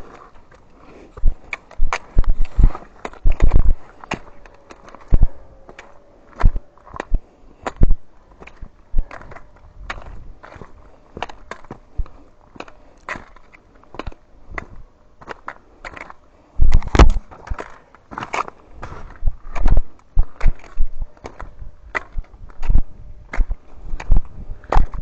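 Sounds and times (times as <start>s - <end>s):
footsteps crunching on dirt: 0.0s - 25.0s.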